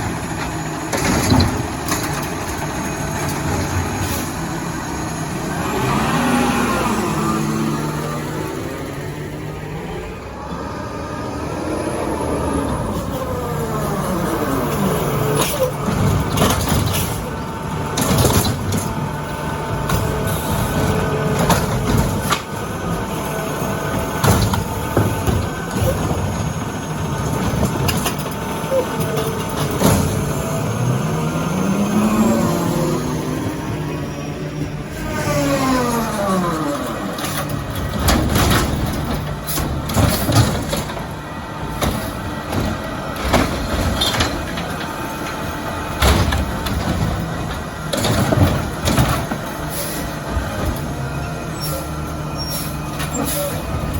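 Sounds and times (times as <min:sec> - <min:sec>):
sharp clanks and bangs: 0:00.0 - 0:04.4, 0:15.3 - 0:30.6, 0:34.6 - 0:51.0
garbage truck running: 0:00.0 - 0:53.9.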